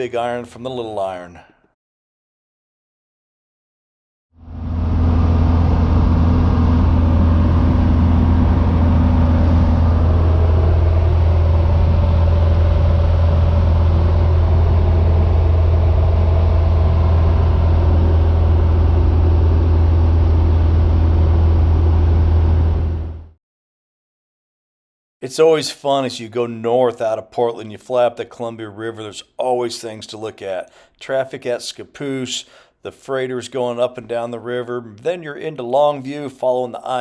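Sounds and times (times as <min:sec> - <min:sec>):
airplane engine and propeller droning: 0:04.4 - 0:23.3.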